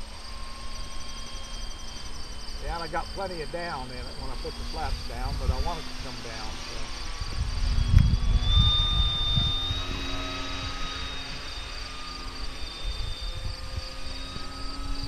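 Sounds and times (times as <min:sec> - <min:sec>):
model plane motor whining: 0:00.0 - 0:15.0
wind buffeting microphone: 0:04.5 - 0:11.7, 0:12.8 - 0:15.0.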